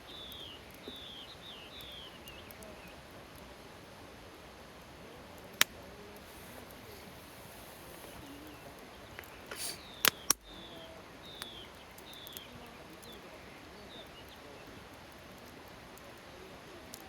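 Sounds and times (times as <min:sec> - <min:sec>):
campfire wood crackling: 0:00.0 - 0:17.0
wood popping: 0:05.5 - 0:10.6.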